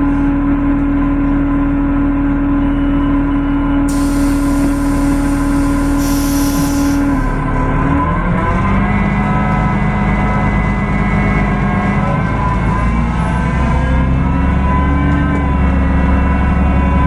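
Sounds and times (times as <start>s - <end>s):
high-pitched whine: 3.9s - 7.4s
bus diesel engine rumbling: 3.9s - 7.7s.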